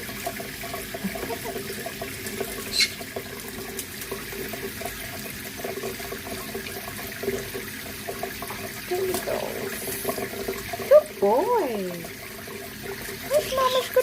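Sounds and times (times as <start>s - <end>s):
water running from sink tap: 0.0s - 14.0s
short high-pitched squeak: 2.7s - 3.0s.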